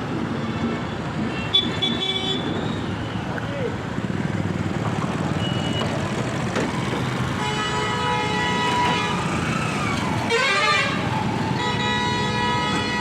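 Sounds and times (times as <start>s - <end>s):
traffic rumble: 0.0s - 13.0s
vehicle horn blasts: 11.6s - 13.0s.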